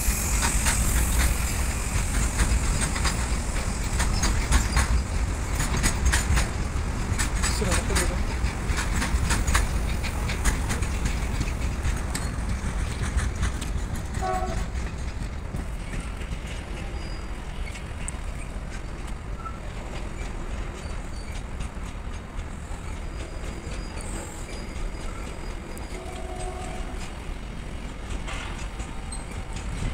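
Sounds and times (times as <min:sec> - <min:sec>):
freight train rolling past: 0:00.0 - 0:29.9
wheels clattering over rail joints: 0:00.4 - 0:29.9
train horn toot: 0:14.2 - 0:14.7, 0:25.8 - 0:27.1.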